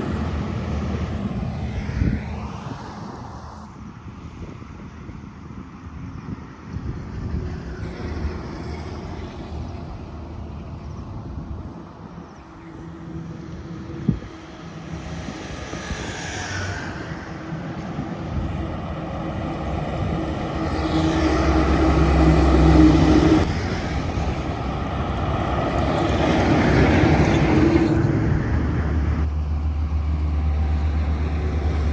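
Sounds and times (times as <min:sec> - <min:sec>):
trucks passing: 0:00.0 - 0:06.1, 0:06.7 - 0:31.9.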